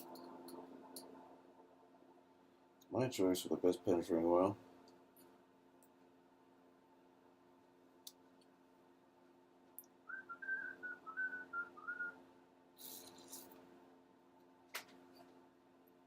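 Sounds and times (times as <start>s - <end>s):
person whistling: 10.1s - 12.2s.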